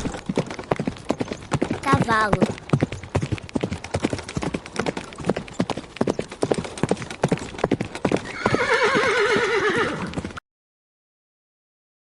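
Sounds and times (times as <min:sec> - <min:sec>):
horse hooves clip-clopping: 0:00.0 - 0:10.4
horse whinnying: 0:08.2 - 0:10.3.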